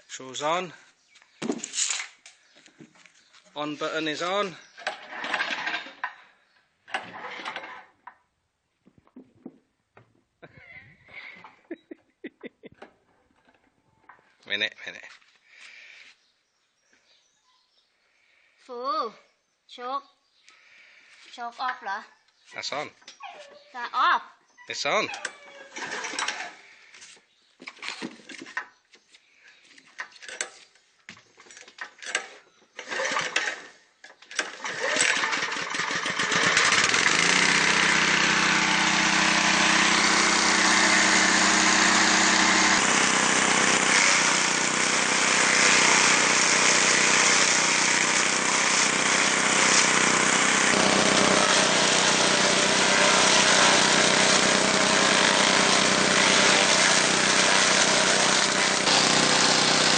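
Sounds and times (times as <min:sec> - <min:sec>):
small petrol engine starting and running: 0:03.6 - 0:07.9, 0:25.2 - 0:26.9, 0:31.9 - 0:59.9.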